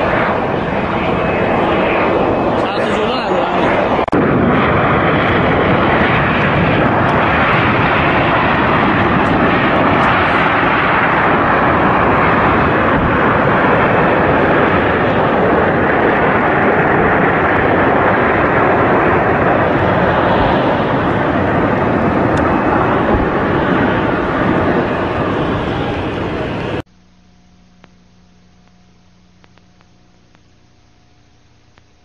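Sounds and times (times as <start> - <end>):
aircraft engine rushing: 0.0 - 26.9.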